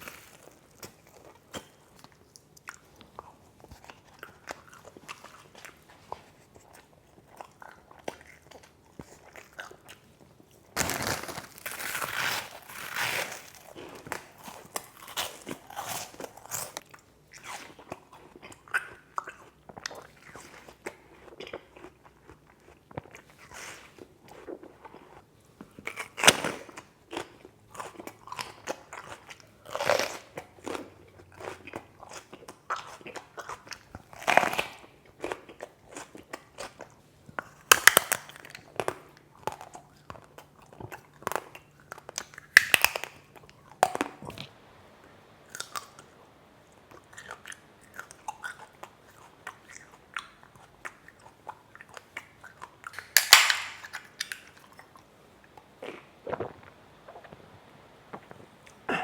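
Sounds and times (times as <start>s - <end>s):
crisp chewing: 0.0s - 44.6s, 45.5s - 59.0s
loud crunchy bites: 10.8s - 16.8s, 52.8s - 54.7s.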